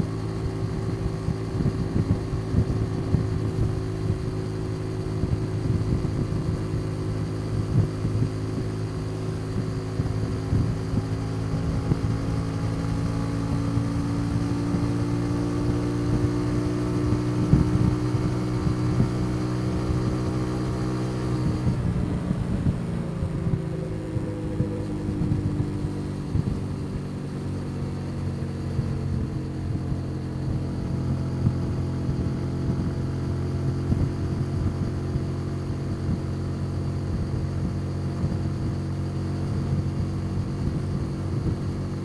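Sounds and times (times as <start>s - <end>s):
motorcycle engine running: 0.0s - 42.0s
wind buffeting microphone: 15.7s - 35.3s.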